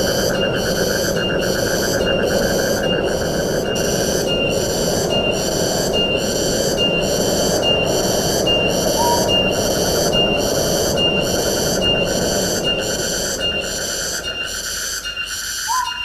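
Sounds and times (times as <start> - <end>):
high-pitched insect call: 0.0 - 16.0
wind rushing: 5.6 - 13.2.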